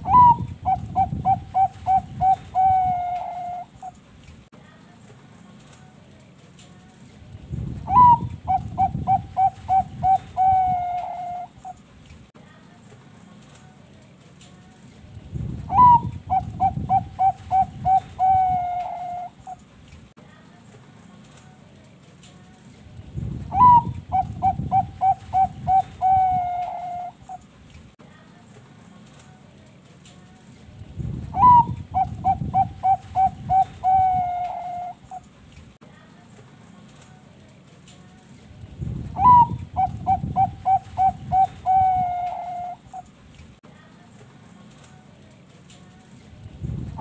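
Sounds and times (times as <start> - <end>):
dove cooing: 0.0 - 4.0, 7.9 - 11.8, 15.7 - 19.6, 23.5 - 27.4, 31.3 - 35.3, 39.2 - 43.1.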